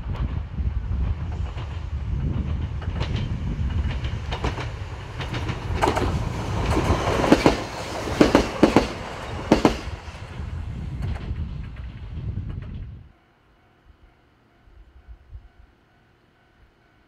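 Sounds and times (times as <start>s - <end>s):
train rumble: 0.0s - 13.2s
wheels clacking over rail joints: 1.3s - 10.3s.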